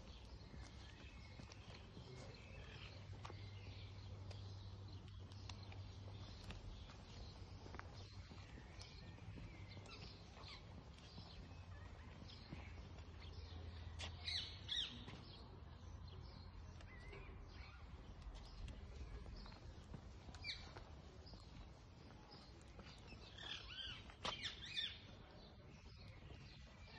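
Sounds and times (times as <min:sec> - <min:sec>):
birds chirping and calling: 0:00.0 - 0:15.2.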